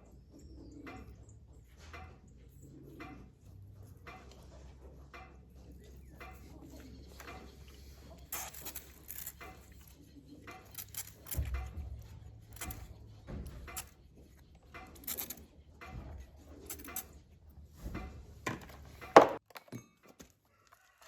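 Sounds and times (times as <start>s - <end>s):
metal tools clinking and knocking: 4.0s - 17.3s.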